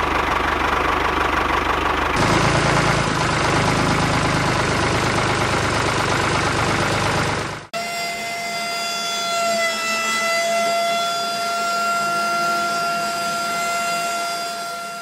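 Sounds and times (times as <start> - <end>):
rough engine-like noise: 0.0 - 15.0
small electric motor whining: 7.8 - 15.0.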